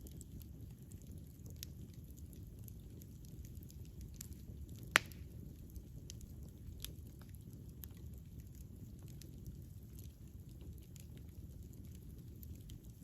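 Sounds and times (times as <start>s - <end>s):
campfire rumbling: 0.0s - 13.0s
faint fire crackles: 0.0s - 13.0s
loud sharp fire pop: 5.0s - 5.2s.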